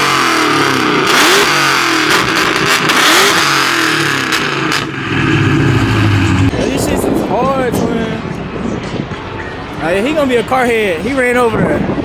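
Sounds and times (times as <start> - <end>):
car engine revving: 0.0 - 6.7.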